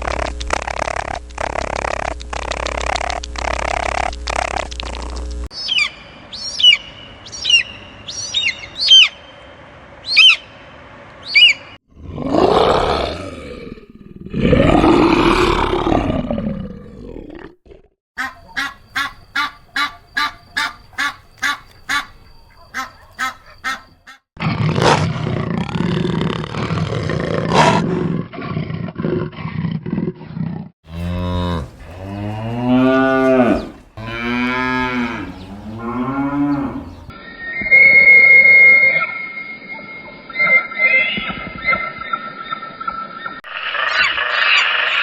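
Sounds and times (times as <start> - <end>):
rough animal call: 18.2 - 39.2.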